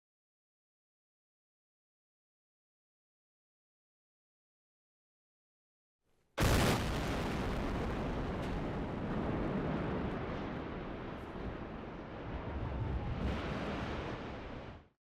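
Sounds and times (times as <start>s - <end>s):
long rolling rumble: 6.4s - 14.9s.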